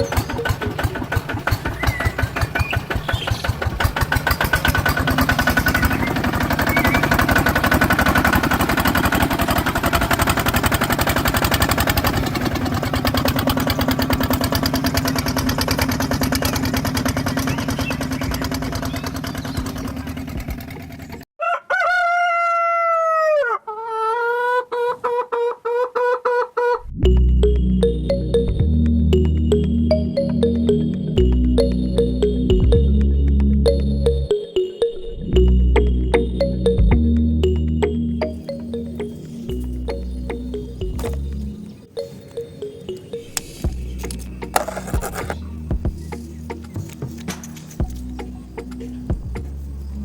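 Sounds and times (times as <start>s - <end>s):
small engine running: 0.0s - 21.3s, 43.6s - 45.6s
rooster crowing: 21.4s - 26.8s.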